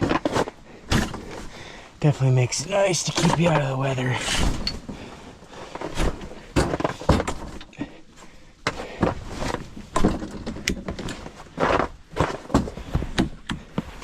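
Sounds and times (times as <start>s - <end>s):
tent frame knocks and clacks: 0.0s - 1.5s, 8.7s - 14.0s
fabric scraping and rustling: 4.1s - 7.6s, 8.9s - 10.1s.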